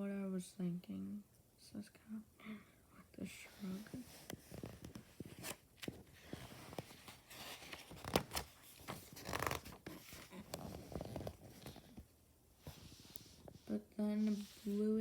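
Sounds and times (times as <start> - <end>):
paper rustling: 3.6 - 12.0
book pages turning: 3.6 - 14.9
paper crinkling: 4.2 - 12.0.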